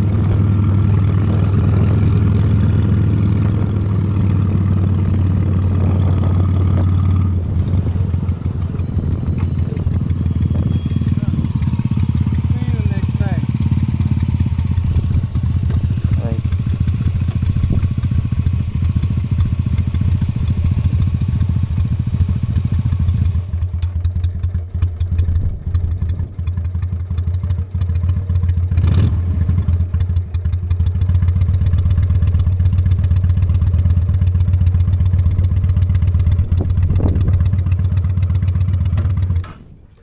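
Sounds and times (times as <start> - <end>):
motorcycle engine running: 0.0 - 40.0
wind and road noise: 0.0 - 40.0.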